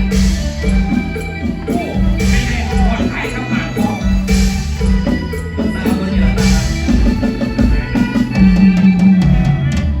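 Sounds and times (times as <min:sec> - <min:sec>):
drum kit playing busy beat: 0:00.0 - 0:10.0
steady bass line: 0:00.0 - 0:10.0.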